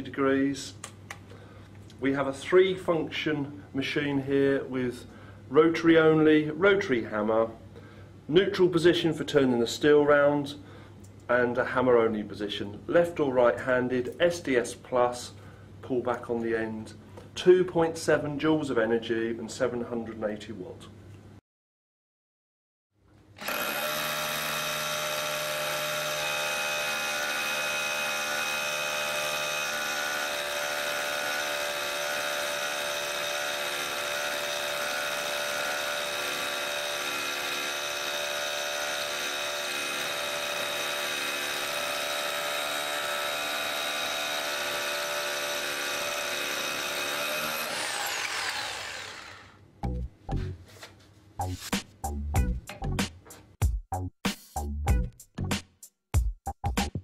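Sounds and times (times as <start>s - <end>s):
rotary hammer running: 23.4s - 49.5s.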